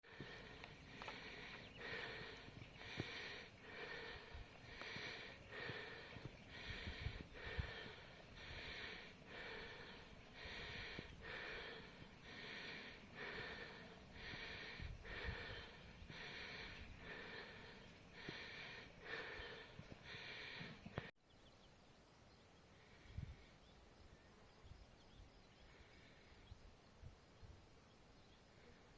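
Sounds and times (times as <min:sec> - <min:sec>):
person breathing hard: 0:00.0 - 0:21.1, 0:22.8 - 0:23.6, 0:25.7 - 0:26.5.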